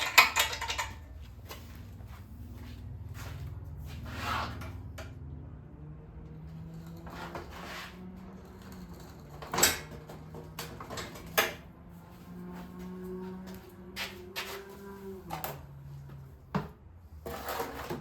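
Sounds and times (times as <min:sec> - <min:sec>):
sharp metallic clanks: 0:00.0 - 0:01.2
tools and metal parts clinking: 0:00.0 - 0:01.8, 0:08.4 - 0:11.6.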